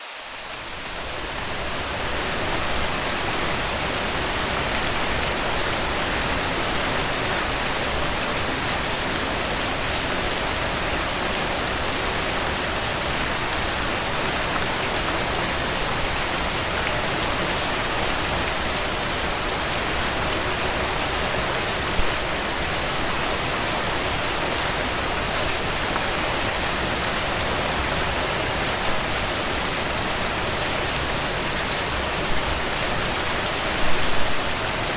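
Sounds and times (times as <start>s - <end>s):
rain falling on a tent: 0.0s - 34.9s.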